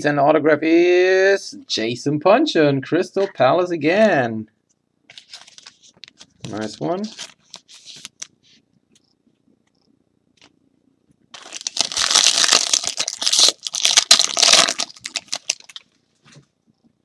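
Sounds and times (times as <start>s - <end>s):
foil wrapper tearing and crinkling: 11.3s - 15.9s.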